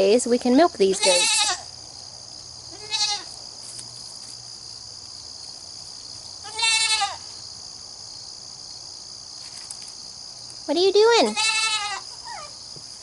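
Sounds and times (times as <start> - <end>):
goat kid bleating: 0.9 - 1.7, 2.7 - 3.4, 6.4 - 7.3, 11.2 - 12.5.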